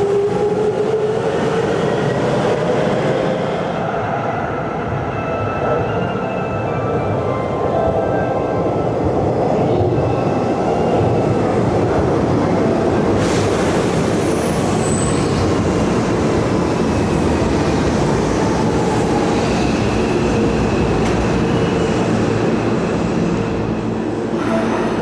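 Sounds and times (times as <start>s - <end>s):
train wheels rumbling on rail: 8.7s - 25.0s.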